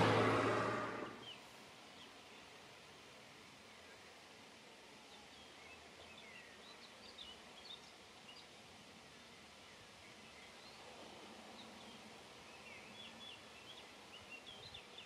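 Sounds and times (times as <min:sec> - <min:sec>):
small birds chirping and twittering: 0:05.2 - 0:10.8, 0:11.6 - 0:15.0.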